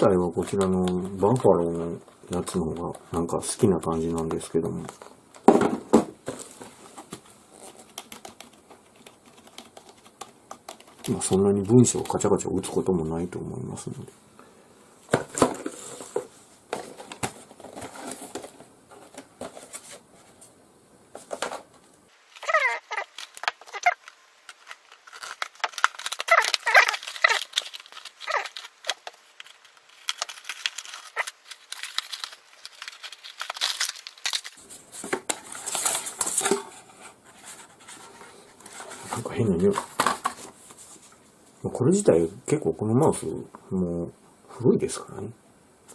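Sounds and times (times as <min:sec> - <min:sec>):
plastic wrap crinkling: 0:21.2 - 0:41.0
packaging tearing: 0:22.2 - 0:34.6.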